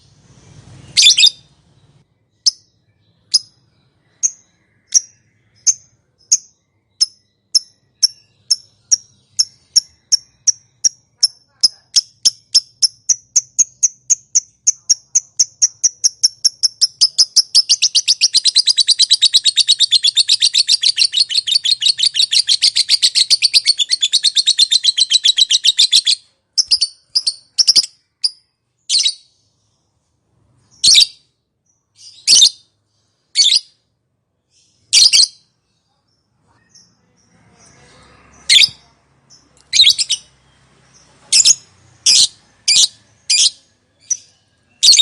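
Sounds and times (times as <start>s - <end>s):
lovebird chattering call: 7.0s - 27.9s.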